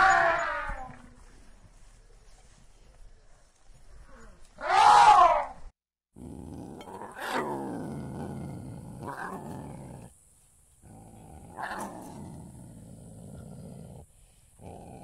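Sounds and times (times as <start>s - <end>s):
lion growling and roaring: 6.2s - 10.2s, 10.8s - 15.0s.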